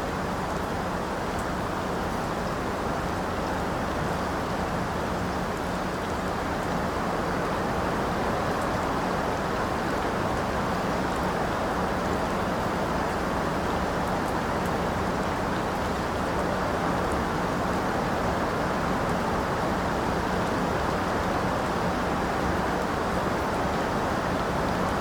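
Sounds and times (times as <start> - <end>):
heavy rain: 0.0 - 25.0.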